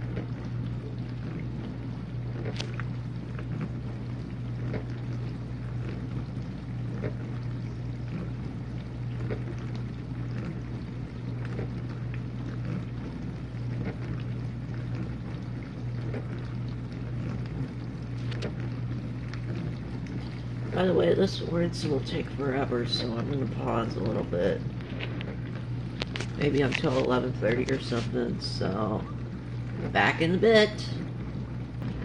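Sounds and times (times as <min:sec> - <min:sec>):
dishwasher pump humming: 0:00.0 - 0:32.0
water spraying and splashing: 0:00.0 - 0:32.0.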